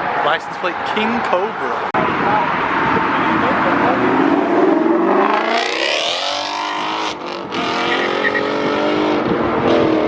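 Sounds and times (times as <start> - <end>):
car engine revving: 2.1 - 10.0.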